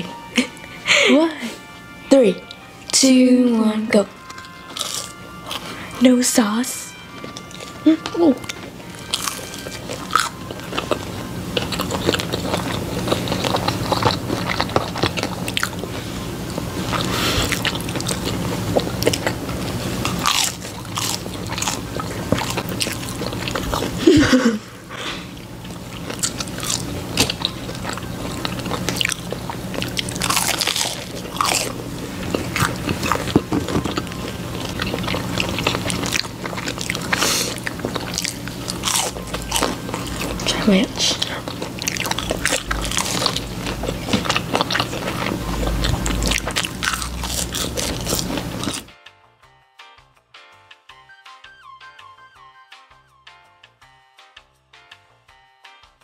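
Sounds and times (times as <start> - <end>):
crunchy chewing: 4.3 - 6.0, 7.1 - 24.2, 25.2 - 48.9.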